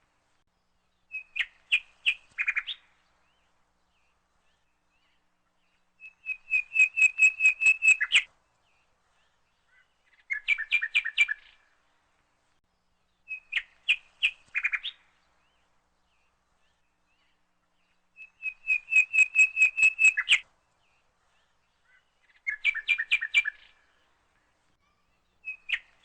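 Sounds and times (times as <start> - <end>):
bird singing whistled notes: 1.1 - 2.9, 6.0 - 8.3, 10.1 - 11.6, 13.2 - 15.0, 18.2 - 20.4, 22.2 - 23.8, 24.9 - 26.0.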